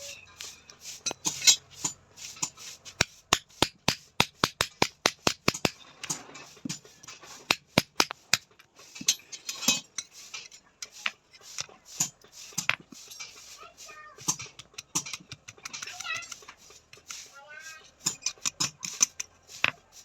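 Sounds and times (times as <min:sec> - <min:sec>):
hammer tapping on steel: 0:02.4 - 0:06.8, 0:07.5 - 0:09.2, 0:14.2 - 0:17.1.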